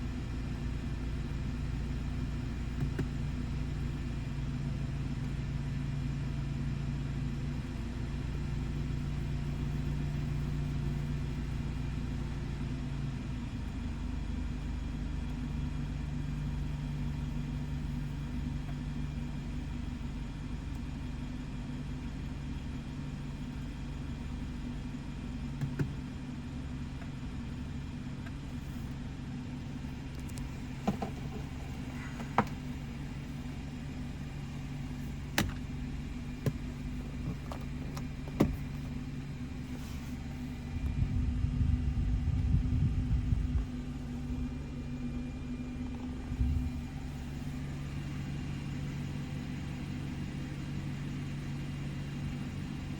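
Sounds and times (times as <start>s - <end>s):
car engine idling: 0.0s - 52.9s
loud low rumble: 40.5s - 48.0s.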